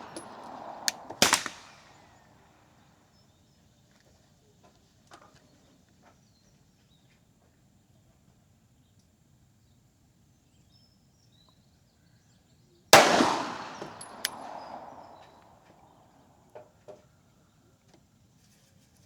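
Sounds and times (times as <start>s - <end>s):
pistol shot: 0.0s - 2.0s, 13.0s - 15.6s.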